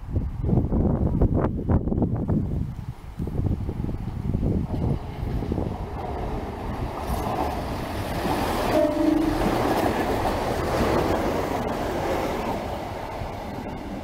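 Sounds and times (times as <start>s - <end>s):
train rushing past: 3.4s - 14.0s
two-tone train horn: 8.7s - 9.7s.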